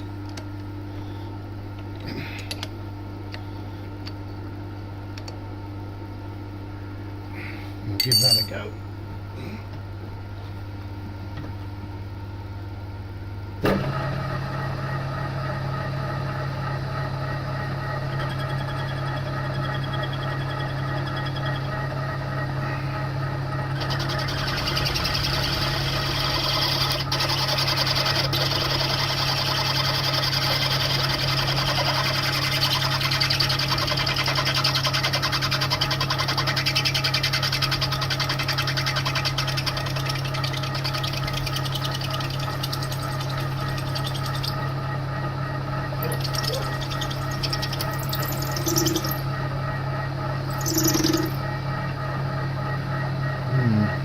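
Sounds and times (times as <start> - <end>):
milling machine spindle humming: 13.3 - 54.0.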